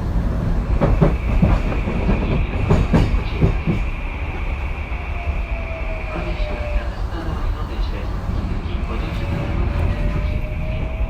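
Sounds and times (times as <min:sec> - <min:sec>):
train wheels clacking over rail joints: 0:00.8 - 0:04.0.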